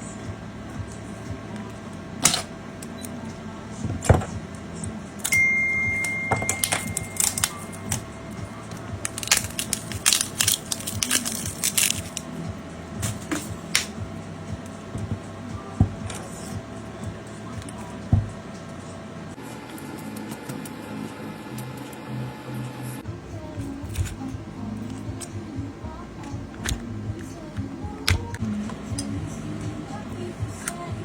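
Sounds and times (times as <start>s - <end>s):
steady high tone: 5.2s - 9.0s.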